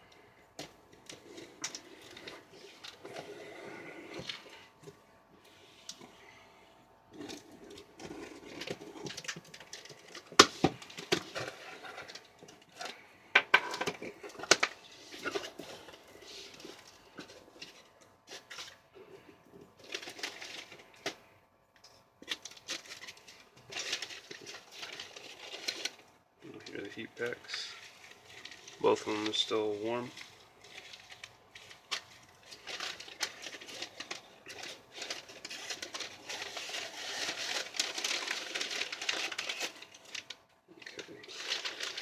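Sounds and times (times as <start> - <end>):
packing material rustling: 0.0 - 6.5, 7.1 - 42.0.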